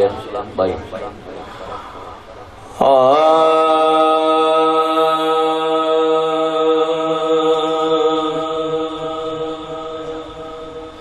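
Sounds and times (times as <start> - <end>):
man singing a long note: 2.7 - 11.0.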